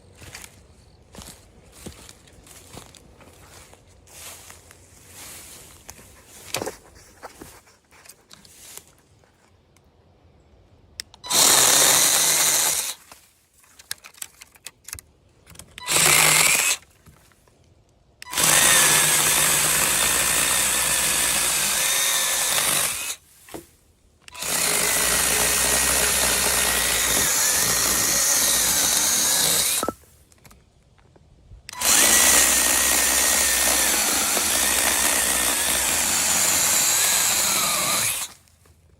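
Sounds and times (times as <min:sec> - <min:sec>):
electric mini chainsaw running: 0:11.3 - 0:13.0, 0:15.8 - 0:16.8, 0:18.3 - 0:23.2, 0:24.3 - 0:30.0, 0:31.7 - 0:38.4.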